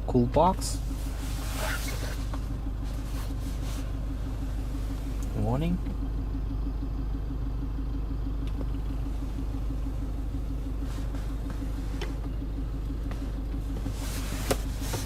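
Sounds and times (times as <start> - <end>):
car engine idling: 0.0 - 15.0
light clicks of cabin fittings: 8.4 - 8.9, 11.0 - 15.0.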